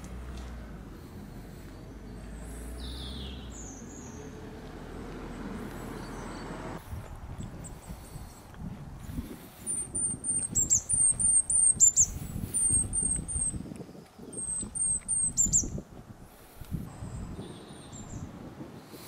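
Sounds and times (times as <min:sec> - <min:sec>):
songbird singing high notes: 0:09.7 - 0:13.6, 0:14.2 - 0:15.8.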